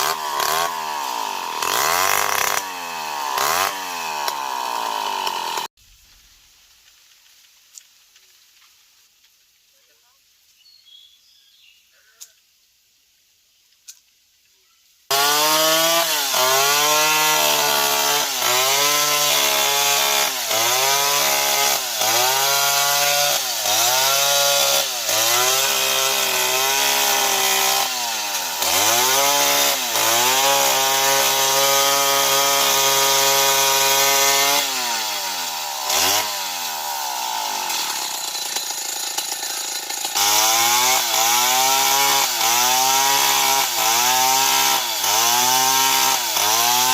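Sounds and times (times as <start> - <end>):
chainsaw cutting wood: 0.0 - 5.8, 15.1 - 46.9.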